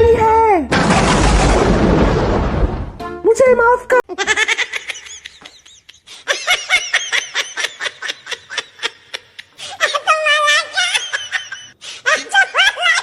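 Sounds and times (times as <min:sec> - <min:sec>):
high-pitched laughter: 0:04.1 - 0:13.0.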